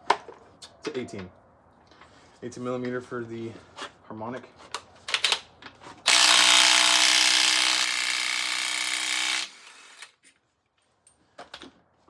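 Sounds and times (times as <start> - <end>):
impact wrench running: 6.1 - 10.1.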